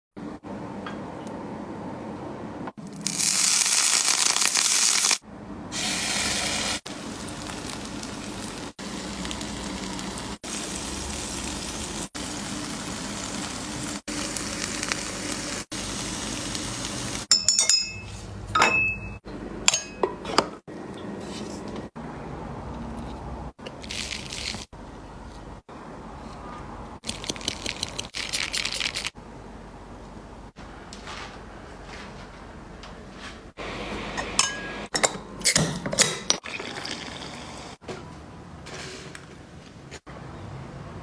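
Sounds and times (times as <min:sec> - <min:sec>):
food sizzling in hot oil: 0:02.9 - 0:05.2, 0:05.8 - 0:17.3
utensils clinking: 0:17.3 - 0:20.6.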